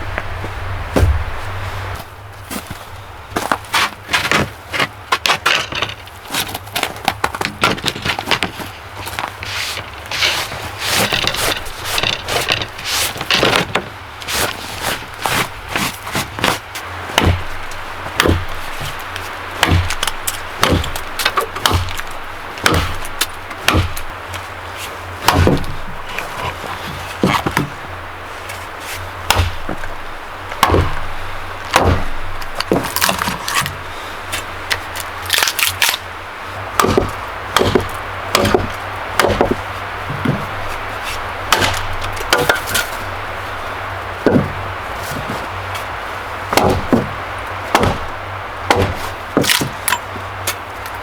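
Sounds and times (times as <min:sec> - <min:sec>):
low steady hum: 0:00.0 - 0:51.0
firewood being chopped: 0:00.8 - 0:51.0.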